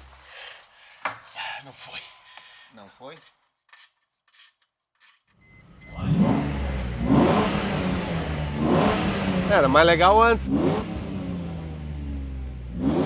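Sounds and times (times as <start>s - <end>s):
car engine revving: 5.7s - 13.0s.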